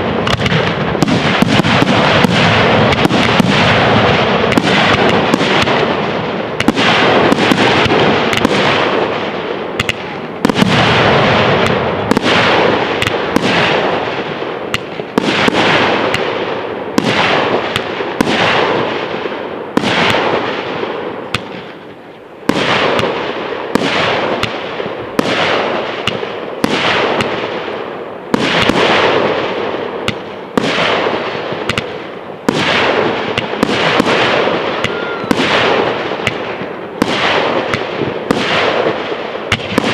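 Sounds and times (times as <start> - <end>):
firework shells bursting: 0.0 - 39.9.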